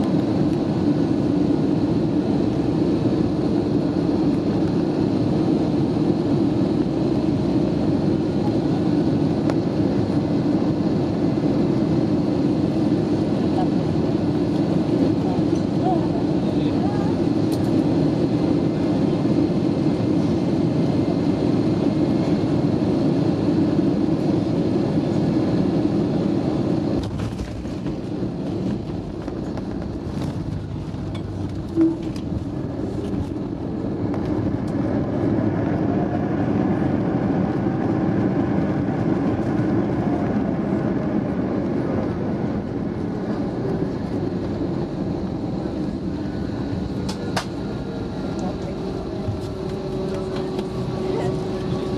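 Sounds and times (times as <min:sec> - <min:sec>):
airliner cabin rumble: 0:00.0 - 0:51.9
faint tone: 0:31.7 - 0:32.2.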